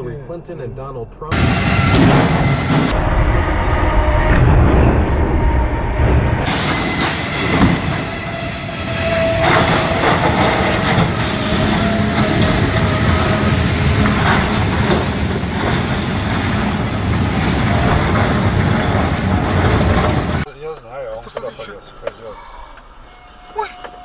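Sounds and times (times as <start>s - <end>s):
high metal squeal: 1.3s - 16.8s, 21.8s - 24.0s
train cars rumbling: 1.3s - 24.0s.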